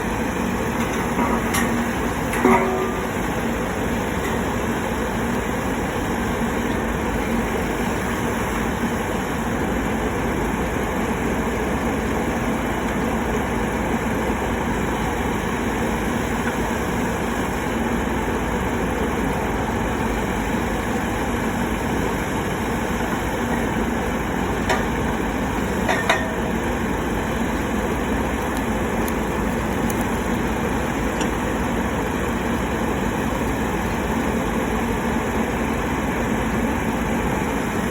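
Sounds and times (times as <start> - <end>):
pile driver engine humming: 0.0 - 37.9.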